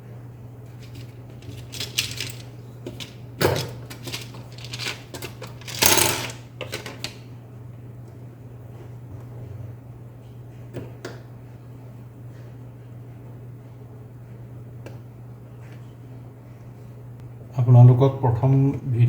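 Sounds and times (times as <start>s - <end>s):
small screws clicking and clinking: 0.8s - 2.4s, 3.0s - 6.9s.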